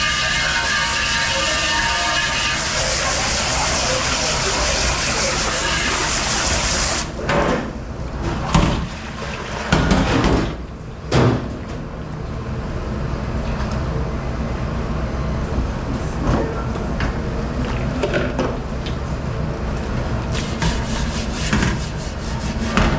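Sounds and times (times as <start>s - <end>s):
sliding scrape: 20.3s - 22.9s.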